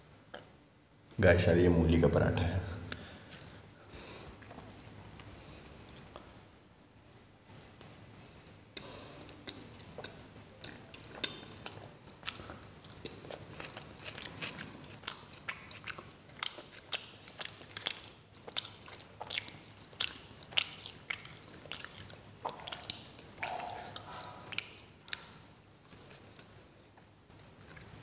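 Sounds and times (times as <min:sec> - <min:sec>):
person chewing with wet mouth clicks: 0:08.7 - 0:28.0.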